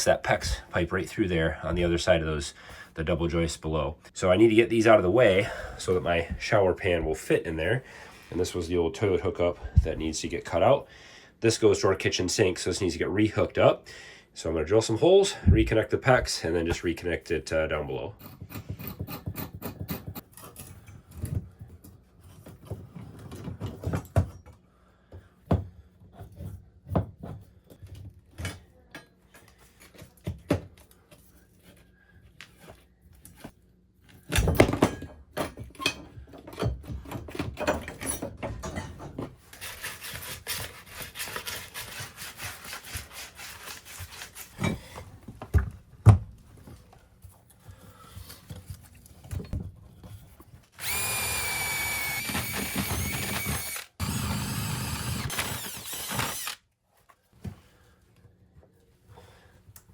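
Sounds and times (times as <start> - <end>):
knocks and thuds of tools: 18.2 - 20.3, 34.3 - 39.4
rubbing and scraping: 39.3 - 44.9
fast rasping scrapes: 39.6 - 44.6.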